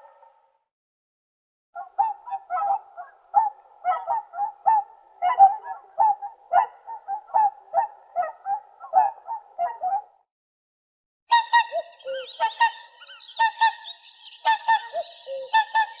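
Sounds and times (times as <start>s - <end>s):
swans bugling calls: 11.3s - 16.0s.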